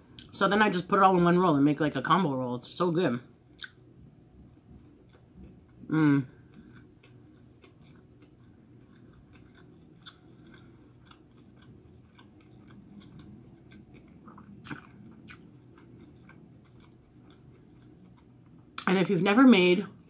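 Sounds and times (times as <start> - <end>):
chewing with small crunches: 3.5 - 19.0
soft mouth clicks: 3.6 - 3.8.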